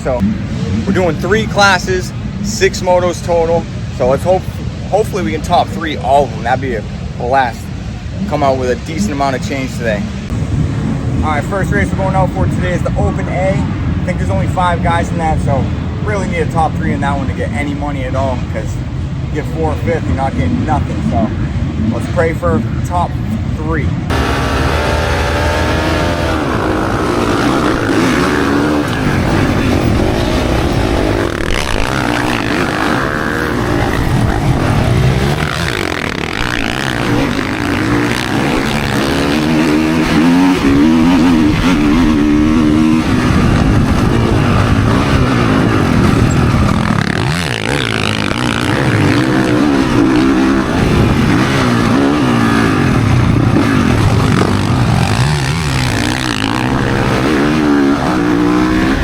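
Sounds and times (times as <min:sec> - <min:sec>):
motocross bike engine revving: 0:24.0 - 0:59.0.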